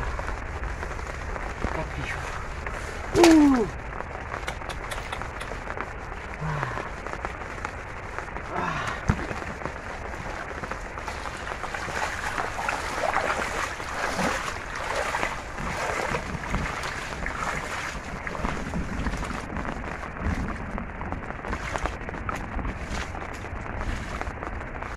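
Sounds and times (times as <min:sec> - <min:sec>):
noisy rush: 0:00.0 - 0:24.9
shallow water sloshing and splashing: 0:08.8 - 0:24.9.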